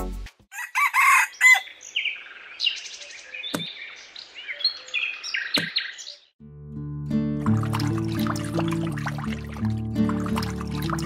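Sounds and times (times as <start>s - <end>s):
rooster crowing: 0.5s - 1.7s.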